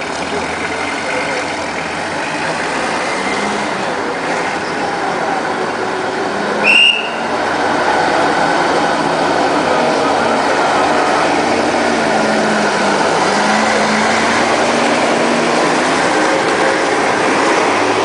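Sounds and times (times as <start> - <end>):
truck engines driving past: 0.0 - 18.0
high-pitched whistle toot: 6.6 - 7.3.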